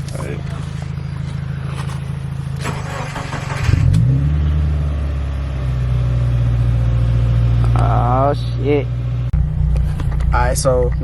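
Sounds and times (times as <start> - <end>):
car engine revving up: 2.6 - 8.1.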